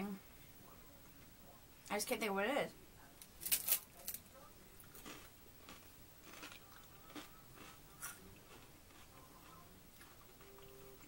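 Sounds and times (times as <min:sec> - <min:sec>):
person chewing crispbread: 0:03.4 - 0:11.0.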